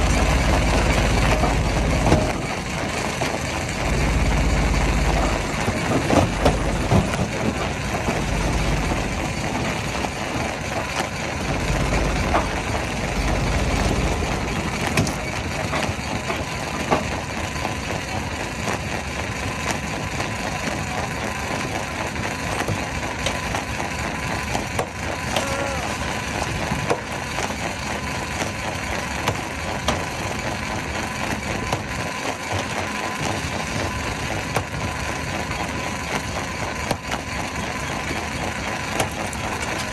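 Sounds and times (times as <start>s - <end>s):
low rumble: 0.0s - 10.3s, 11.3s - 15.7s
stone crusher grinding rock: 0.0s - 18.2s.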